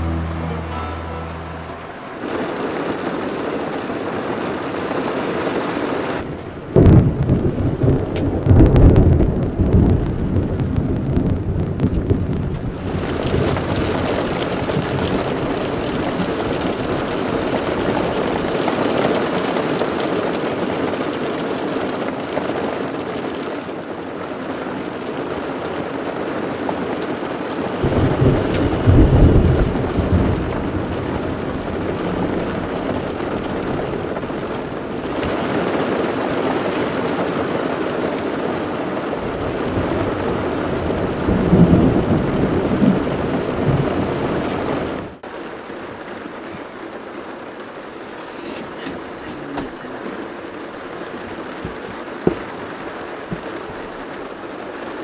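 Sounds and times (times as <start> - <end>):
low thunder rolls: 0.0 - 22.9, 27.7 - 45.3
rain on a vehicle roof: 0.0 - 55.0.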